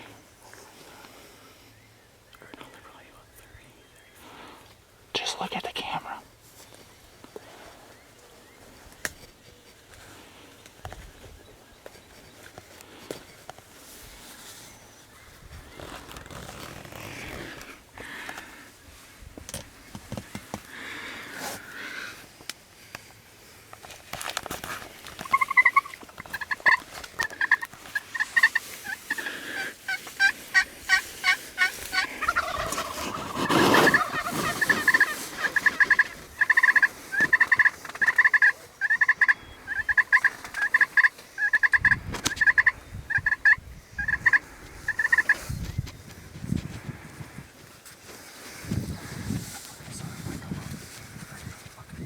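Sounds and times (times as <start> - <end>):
turkeys yelping: 25.1 - 45.5
turkey gobble: 25.2 - 45.5.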